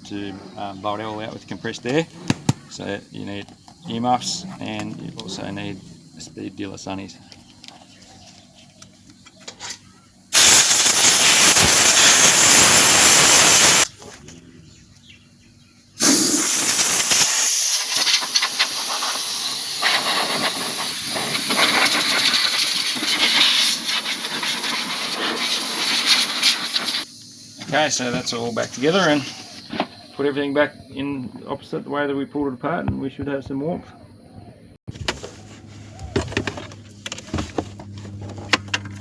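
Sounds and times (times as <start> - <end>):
air blow gun blasting: 10.3 - 13.9, 16.0 - 27.1.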